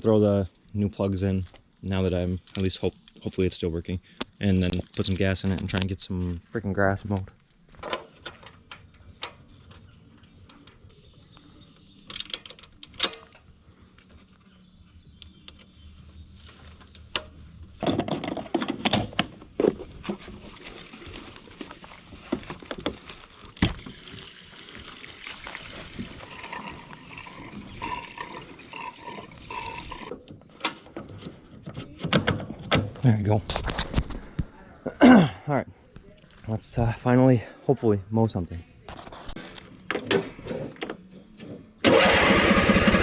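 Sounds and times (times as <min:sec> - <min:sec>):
gasoline pouring into fuel tank: 0:23.5 - 0:30.1.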